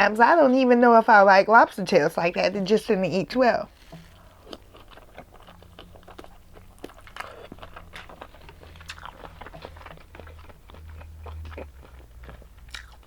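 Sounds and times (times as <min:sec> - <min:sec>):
person chewing food: 0:03.7 - 0:13.0.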